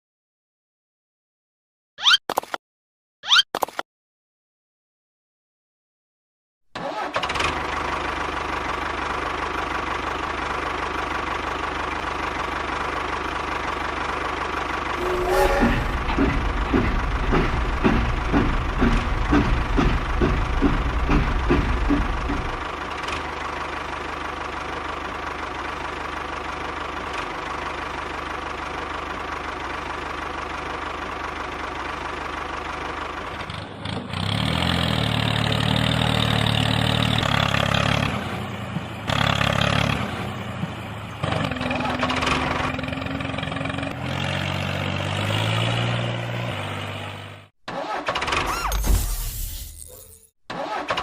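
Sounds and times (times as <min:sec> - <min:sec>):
tractor engine puttering: 0:06.8 - 0:25.8, 0:47.7 - 0:48.8, 0:50.5 - 0:51.0
loud engine drone: 0:14.8 - 0:22.6.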